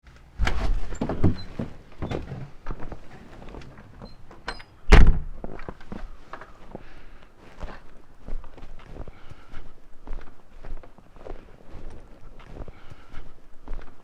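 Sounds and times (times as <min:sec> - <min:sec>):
knocks and clunks: 0:00.4 - 0:06.5.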